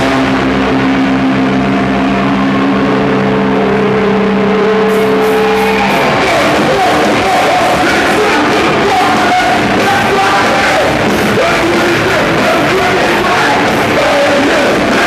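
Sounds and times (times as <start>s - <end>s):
live rock band playing: 0.0s - 15.0s
person yelling singing: 5.3s - 15.0s.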